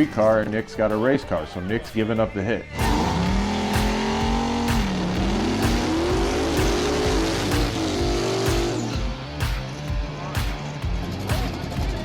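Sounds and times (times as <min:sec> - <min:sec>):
background music with steady beat: 0:00.0 - 0:12.0
tire squeal: 0:02.7 - 0:09.0
racing car engine accelerating: 0:02.7 - 0:09.3.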